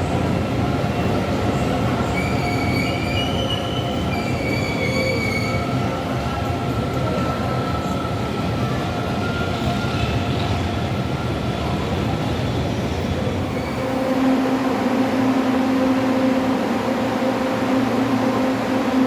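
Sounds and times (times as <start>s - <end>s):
train rumbling on rails: 0.0s - 19.0s
steady low hum: 13.8s - 19.0s.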